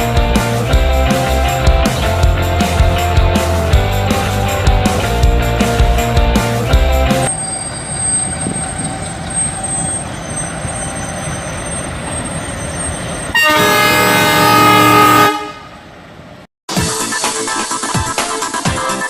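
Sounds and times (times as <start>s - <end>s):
railway rumbling: 0.0s - 16.5s
train horn blaring: 13.3s - 15.9s.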